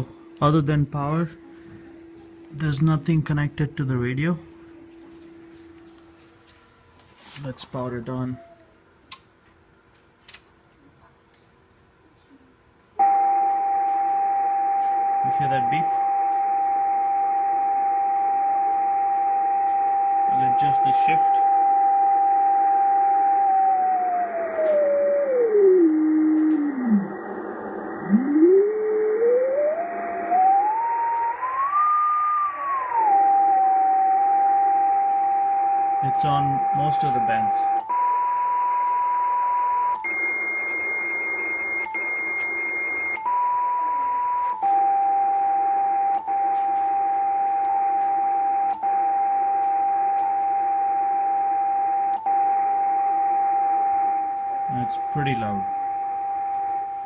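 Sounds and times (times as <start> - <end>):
radio whistle tone sliding in pitch: 23.2 - 34.6.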